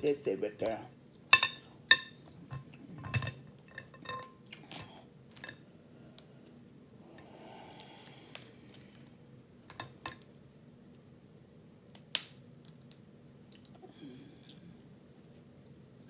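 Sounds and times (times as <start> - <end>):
sharp snap: 12.0 - 12.4.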